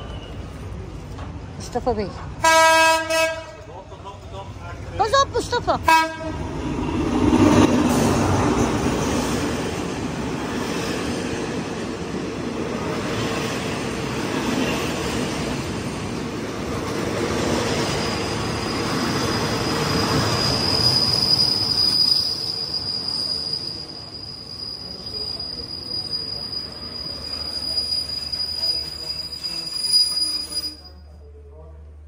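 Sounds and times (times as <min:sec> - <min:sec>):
train carriages rolling: 0:00.0 - 0:31.2
diesel locomotive rumbling: 0:00.0 - 0:32.0
wheel and brake squeal: 0:18.0 - 0:31.1.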